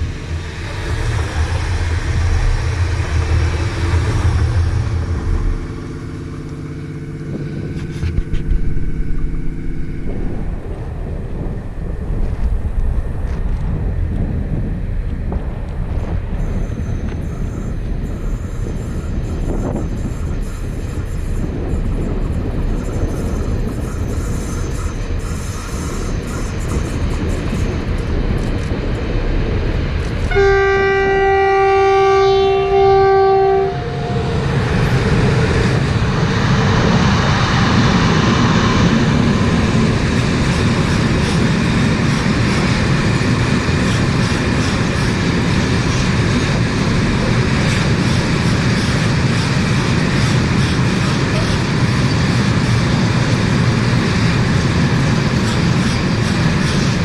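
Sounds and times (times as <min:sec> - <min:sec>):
train wheels rumbling on rails: 0:00.0 - 0:57.0
train horn blast: 0:30.3 - 0:34.5.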